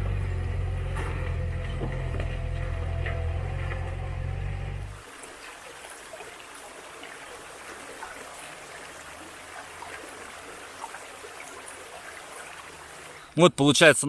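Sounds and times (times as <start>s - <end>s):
mountain stream rushing: 2.3s - 13.3s.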